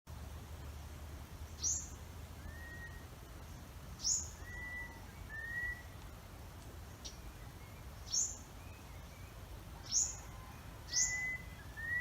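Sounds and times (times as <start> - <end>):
bird sharp high calls: 1.5 - 3.1, 4.0 - 6.0, 7.0 - 12.0
bird low drawn-out whistles: 1.6 - 3.1, 4.0 - 6.0, 7.4 - 12.0.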